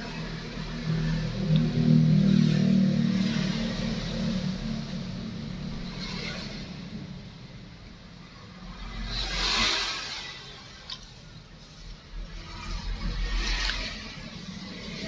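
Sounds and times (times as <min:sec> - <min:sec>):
vehicle engine passing by: 0:08.6 - 0:15.0.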